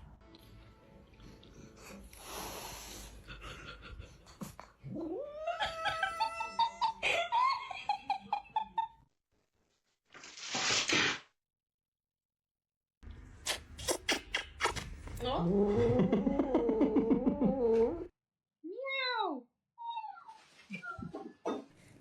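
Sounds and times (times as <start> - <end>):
cat yowling and meowing: 4.9 - 6.8.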